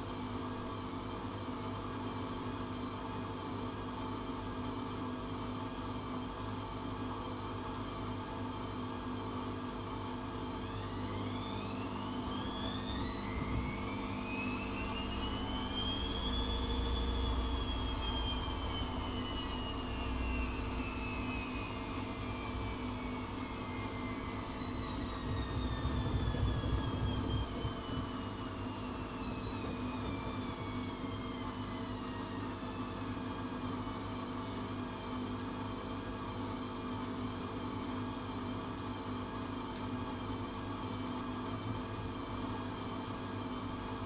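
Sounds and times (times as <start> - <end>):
washing machine motor whining: 10.6 - 34.4
low hum and rumble: 11.2 - 32.0.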